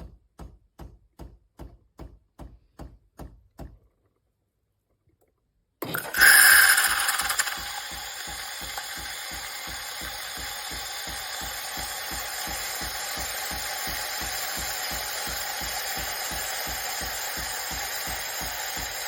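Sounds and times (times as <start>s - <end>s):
espresso machine hissing and pulsing: 5.8s - 19.0s.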